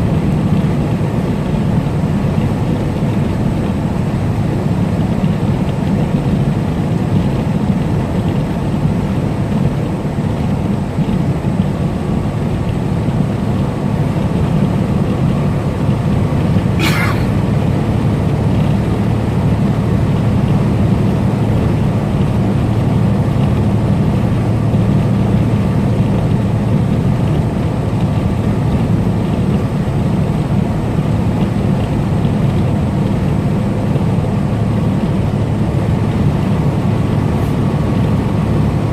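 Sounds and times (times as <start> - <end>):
road noise: 0.0 - 38.9
truck engine drone: 0.0 - 38.9.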